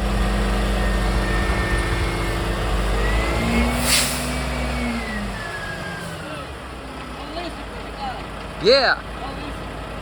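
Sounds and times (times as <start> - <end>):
garbage truck diesel engine revving: 0.0 - 10.0
sharp air hiss: 3.8 - 4.4.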